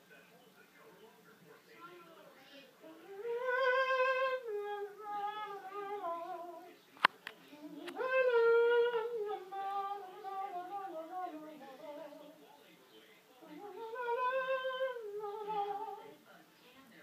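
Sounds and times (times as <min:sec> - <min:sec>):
person humming: 0:02.8 - 0:06.7, 0:07.6 - 0:12.1, 0:13.4 - 0:16.0.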